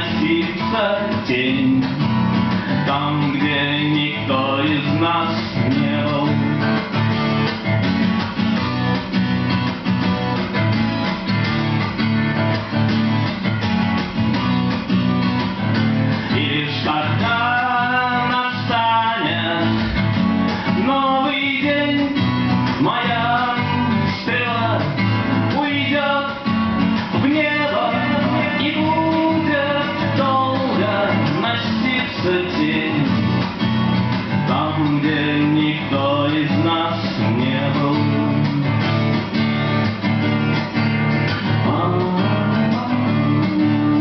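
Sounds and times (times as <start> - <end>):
acoustic guitars strummed: 0.0 - 44.0.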